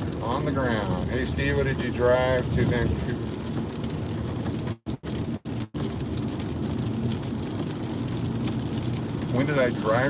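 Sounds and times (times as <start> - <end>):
rain on a car: 0.0 - 10.0
road and engine hum: 0.0 - 10.0.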